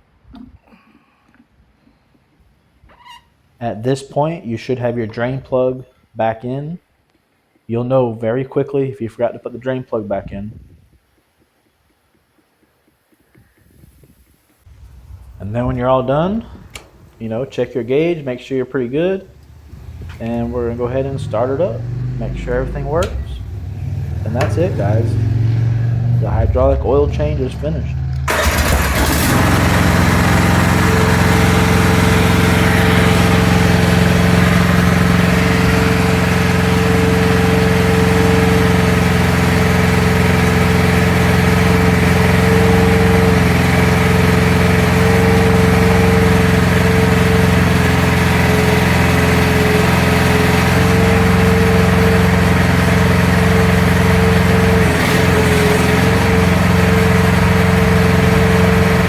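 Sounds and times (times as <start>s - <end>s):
steady whine: 14.7s - 38.6s
excavator engine idling: 14.7s - 59.0s.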